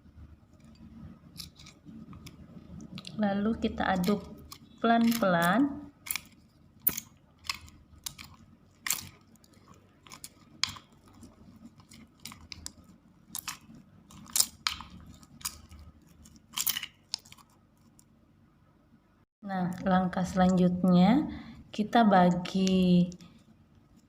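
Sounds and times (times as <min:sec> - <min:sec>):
spoon stirring sticky slime: 0:00.5 - 0:18.0.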